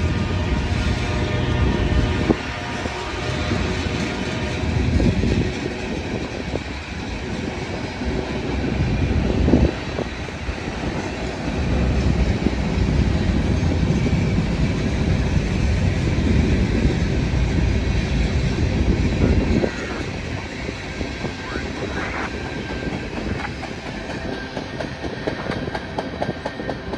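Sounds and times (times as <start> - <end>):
train rumbling past: 0.0 - 26.9.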